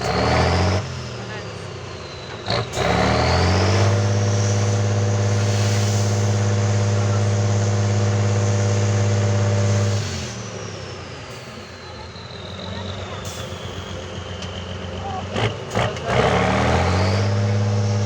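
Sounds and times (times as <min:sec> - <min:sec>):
diesel truck engine revving: 0:00.0 - 0:18.0
high turbo whistle: 0:04.0 - 0:10.4.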